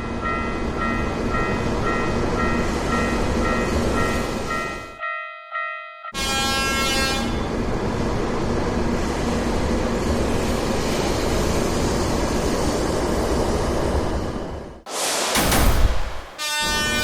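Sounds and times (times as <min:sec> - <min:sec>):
train rushing rumble: 0:06.4 - 0:17.0.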